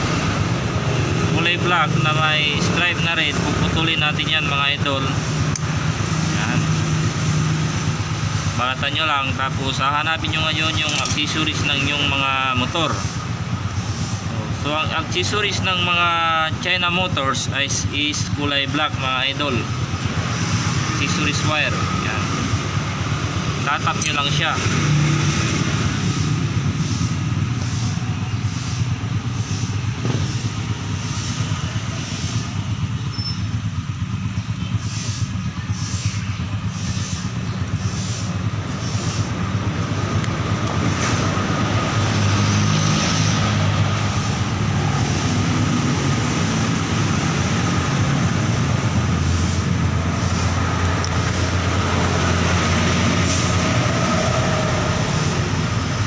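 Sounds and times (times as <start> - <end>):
hiss: 26.0 - 32.5, 34.8 - 39.4.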